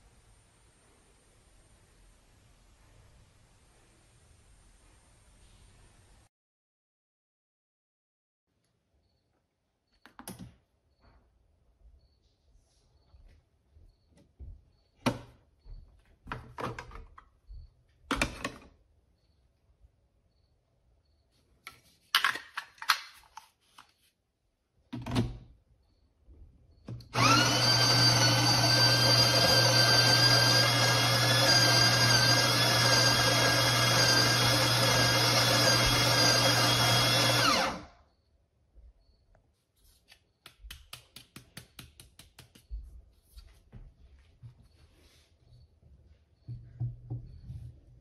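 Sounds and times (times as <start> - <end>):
coffee grinder running: 27.2 - 37.8.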